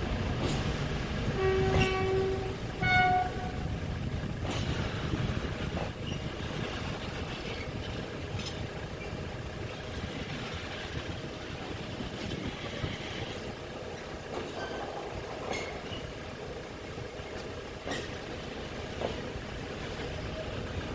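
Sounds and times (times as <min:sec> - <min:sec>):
diesel train engine rumble: 0:00.0 - 0:20.9
train wheels clicking: 0:00.0 - 0:20.9.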